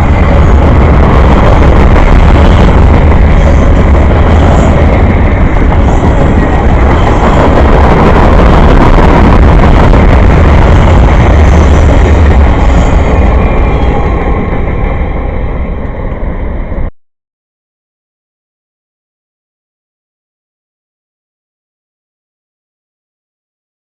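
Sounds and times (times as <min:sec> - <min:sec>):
train rolling rumble: 0:00.0 - 0:16.9.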